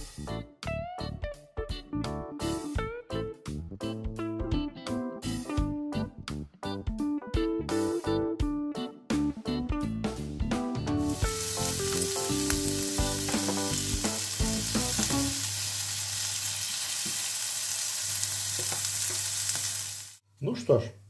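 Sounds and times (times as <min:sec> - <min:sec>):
background music: 0:00.0 - 0:15.5
food sizzling in a pan: 0:11.0 - 0:20.2.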